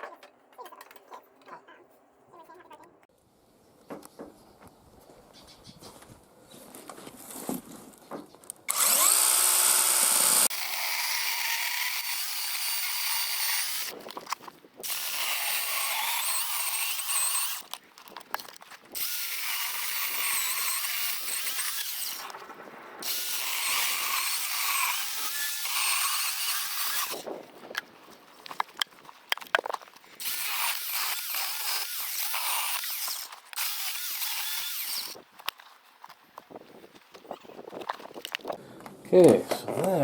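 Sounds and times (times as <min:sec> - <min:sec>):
power drill whining: 0:08.7 - 0:13.9, 0:30.2 - 0:35.2.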